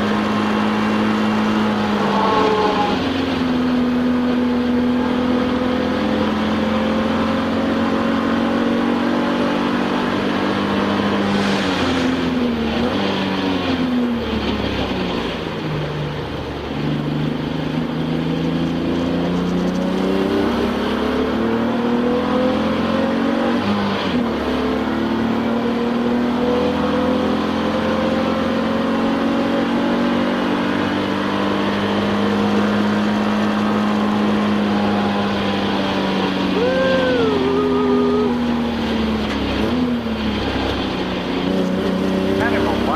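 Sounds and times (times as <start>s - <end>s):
race car engine from inside cabin: 0.0s - 42.9s.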